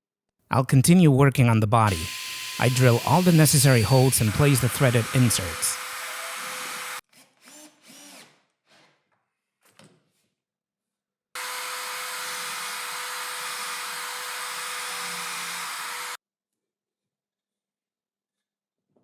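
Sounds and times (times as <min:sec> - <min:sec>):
electric drill boring wood: 0:01.9 - 0:07.0, 0:11.4 - 0:16.2.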